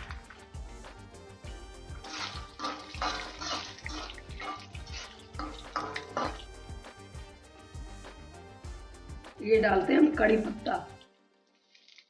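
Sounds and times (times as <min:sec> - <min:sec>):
background music with beat: 0:00.0 - 0:11.0
food sizzling in hot oil: 0:01.5 - 0:07.7.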